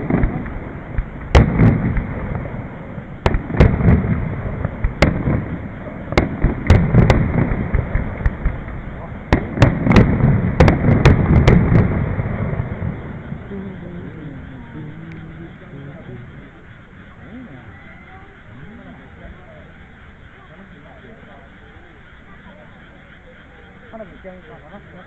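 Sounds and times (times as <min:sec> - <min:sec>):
fireworks bangs: 0:00.0 - 0:17.1
low rumble of booms: 0:00.0 - 0:17.1.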